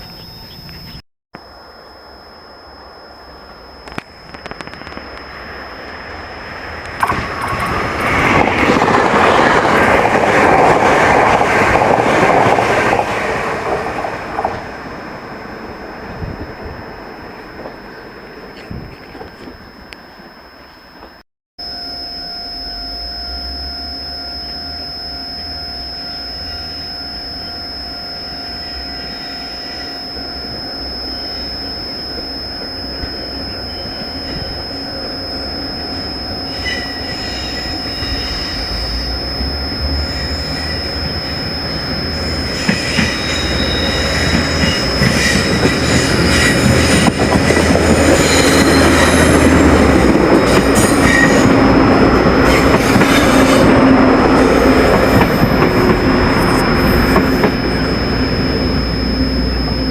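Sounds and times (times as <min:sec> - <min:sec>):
steady high-pitched tone: 0:00.0 - 0:18.4, 0:19.3 - 0:59.9
train wheel clatter on rails: 0:07.0 - 0:14.6, 0:44.2 - 0:49.2.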